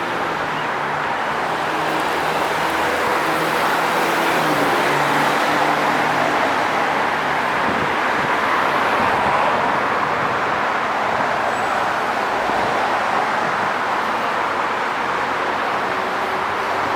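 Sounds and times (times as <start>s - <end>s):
traffic tyres and engines: 0.0s - 16.9s.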